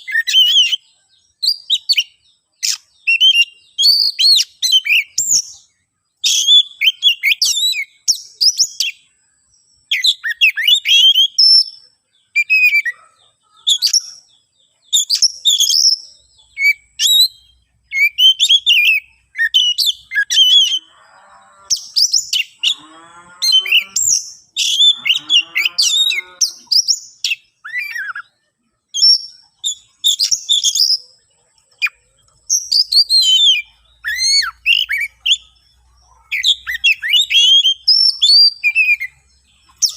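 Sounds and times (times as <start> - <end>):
bird song whistles and chatter: 0.0 - 39.9
harsh rasping bird call: 17.9 - 28.2.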